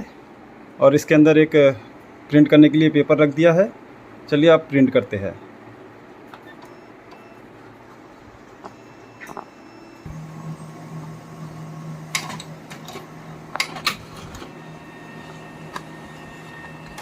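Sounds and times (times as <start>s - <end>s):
printer motor hum: 6.5s - 17.0s
printer mechanism clicks: 12.0s - 17.0s.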